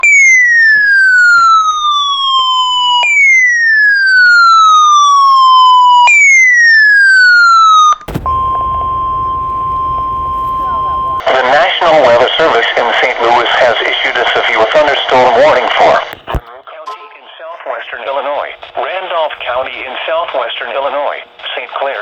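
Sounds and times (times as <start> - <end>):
siren-like wail falling in pitch: 8.1 - 11.2
steady warning alarm tone: 8.1 - 11.2
radio hiss: 9.0 - 22.0.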